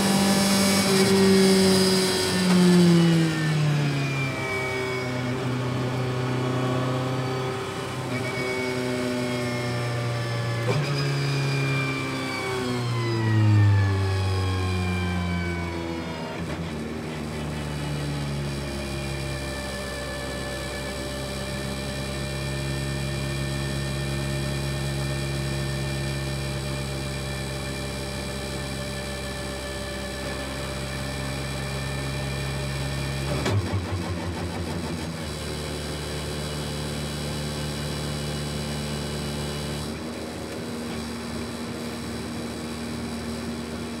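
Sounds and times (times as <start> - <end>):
car engine running: 14.2 - 44.0.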